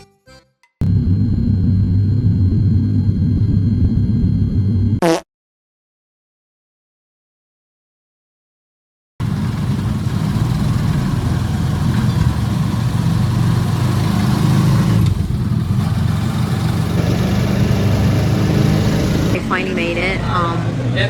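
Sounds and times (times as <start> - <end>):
vehicle engine running: 9.2 - 21.0.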